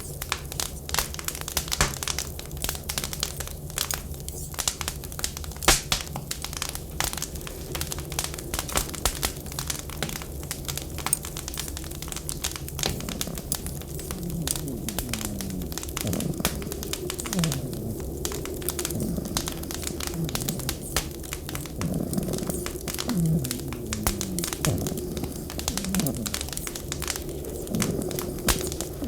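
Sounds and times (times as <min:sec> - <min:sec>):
wood fire crackling: 0:00.0 - 0:29.0
steady low rumble: 0:12.0 - 0:29.0.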